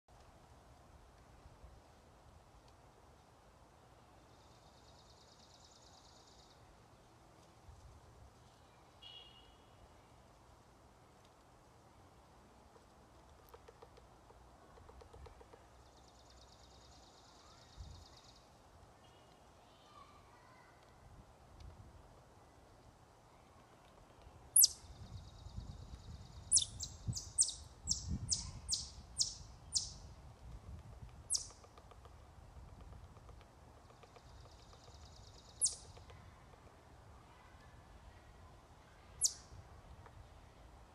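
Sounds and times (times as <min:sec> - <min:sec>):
low background noise: 0:00.1 - 0:40.9
bird trilling: 0:24.6 - 0:24.9, 0:26.5 - 0:30.0, 0:31.3 - 0:31.7, 0:35.6 - 0:36.0.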